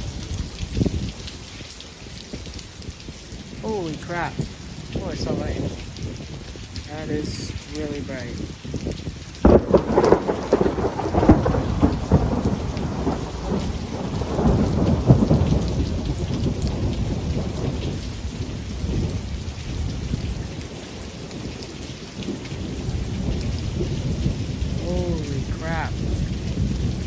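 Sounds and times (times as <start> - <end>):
steady rain: 0.0 - 27.0
thunder crashing and rumbling: 9.4 - 20.5, 22.3 - 27.0.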